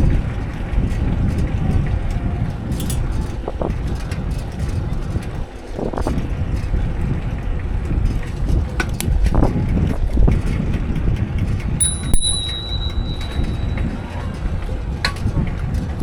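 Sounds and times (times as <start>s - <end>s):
bicycle clicks and rattles: 0.0s - 16.0s
wind buffeting microphone: 0.0s - 16.0s
steady high-pitched tone: 11.8s - 14.2s.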